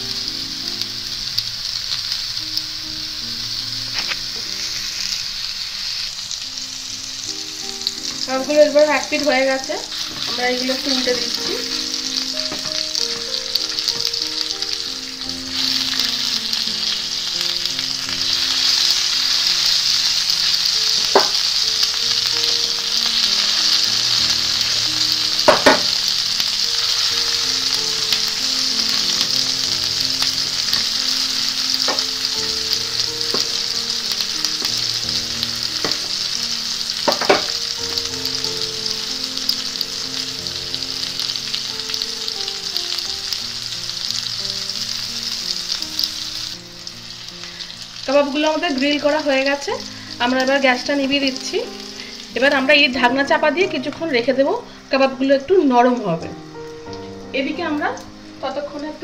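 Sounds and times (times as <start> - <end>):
oil sizzling in a pan: 0.0 - 59.0
skewers tapping on a pan: 10.1 - 14.3, 20.6 - 26.2, 26.8 - 31.2, 31.8 - 39.6.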